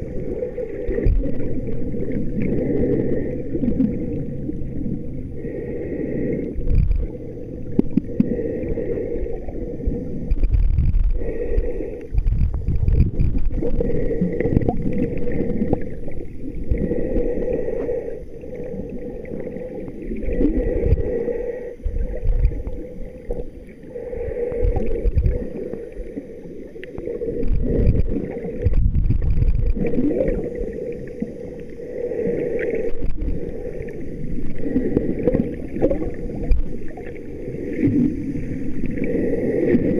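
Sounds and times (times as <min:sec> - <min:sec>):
muffled water sloshing: 0:00.0 - 0:39.9.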